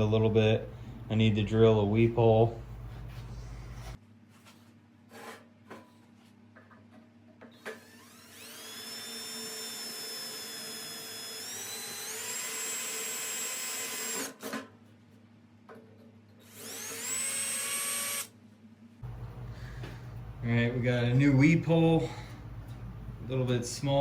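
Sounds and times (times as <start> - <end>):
electric drill boring metal: 7.8 - 14.3, 16.5 - 18.3.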